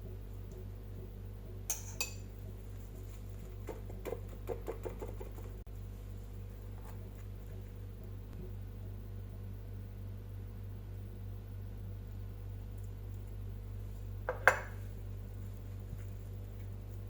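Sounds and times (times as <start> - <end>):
steady low hum: 0.0 - 17.0
dishes clinking: 1.7 - 2.3, 14.3 - 14.8.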